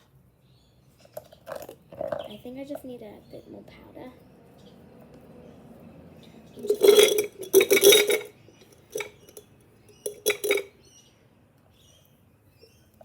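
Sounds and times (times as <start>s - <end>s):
utensil clattering against bowl: 6.6s - 10.7s.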